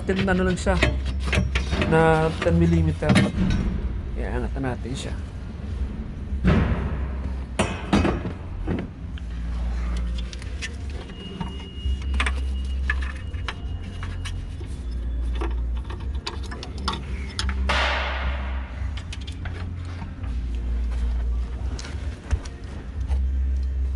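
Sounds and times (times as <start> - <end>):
tools and metal parts clinking: 0.0 - 3.8, 9.9 - 17.8
steady low hum: 0.0 - 23.9.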